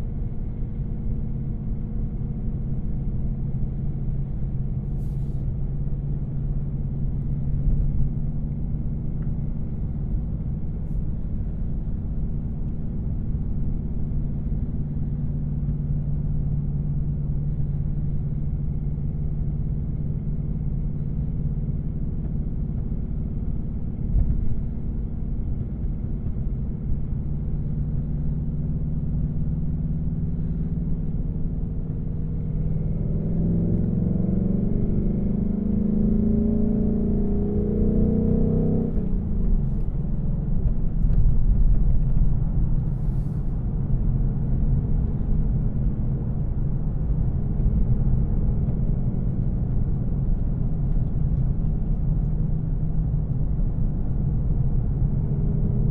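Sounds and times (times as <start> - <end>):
car engine drone: 0.0 - 55.9
road noise: 28.9 - 55.9.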